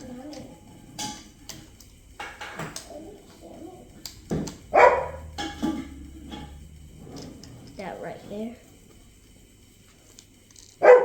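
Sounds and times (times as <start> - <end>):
dog barking: 4.7 - 5.3, 10.8 - 11.0.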